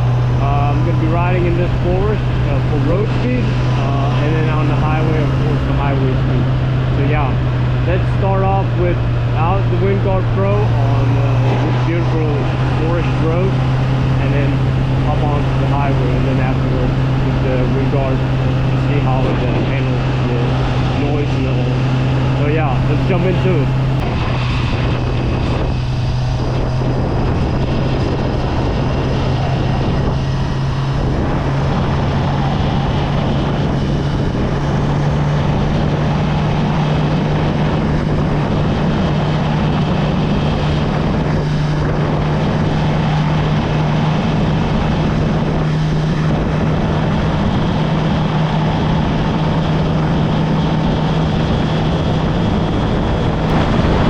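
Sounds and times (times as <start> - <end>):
motorcycle engine cruising: 0.0 - 54.0
wind noise on microphone: 0.0 - 54.0.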